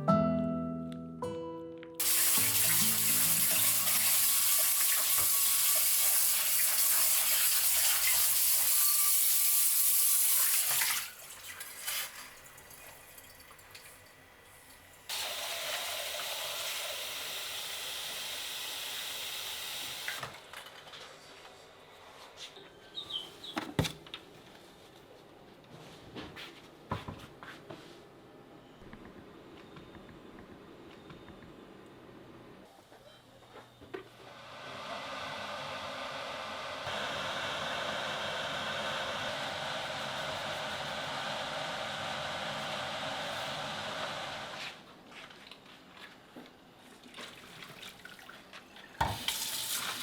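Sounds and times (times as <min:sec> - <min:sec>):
tap water running into sink: 0:02.0 - 0:14.0, 0:48.9 - 0:50.0.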